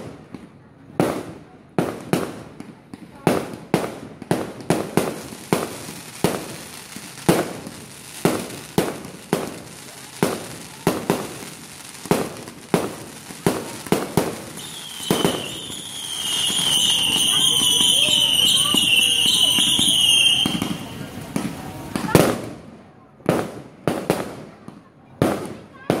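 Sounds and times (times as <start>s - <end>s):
fireworks bangs: 0.0s - 26.0s
high wavering whistle: 14.6s - 21.2s.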